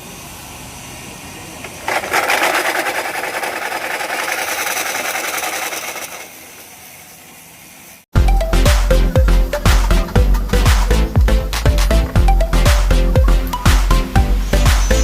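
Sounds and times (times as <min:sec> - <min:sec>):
motor rattling whir: 0:01.6 - 0:07.7.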